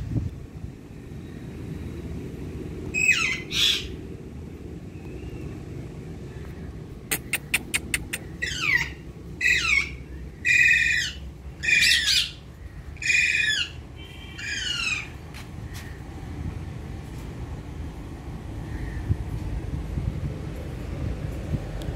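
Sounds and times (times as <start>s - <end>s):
sharp clicks: 7.1s - 8.3s
parakeet squawking: 7.1s - 12.4s, 13.0s - 15.1s.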